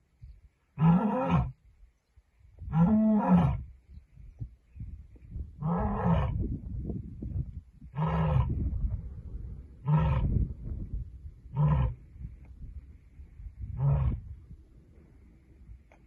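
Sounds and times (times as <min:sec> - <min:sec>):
low rumble: 0:03.6 - 0:16.0
lioness roaring: 0:09.8 - 0:10.3, 0:11.5 - 0:12.0, 0:13.8 - 0:14.2.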